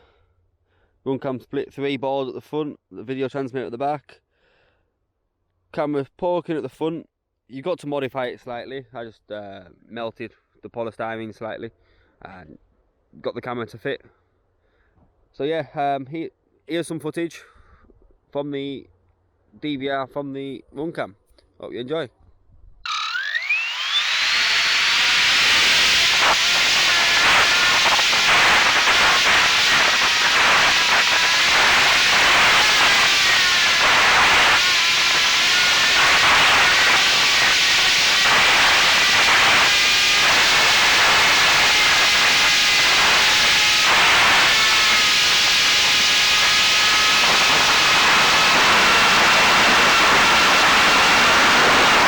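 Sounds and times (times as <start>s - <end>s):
electric motor whine: 22.9s - 52.0s.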